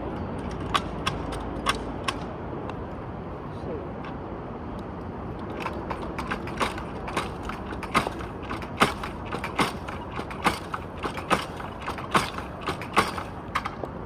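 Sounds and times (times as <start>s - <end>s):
steady background noise: 0.0s - 14.0s
sharp clicking: 0.3s - 2.8s.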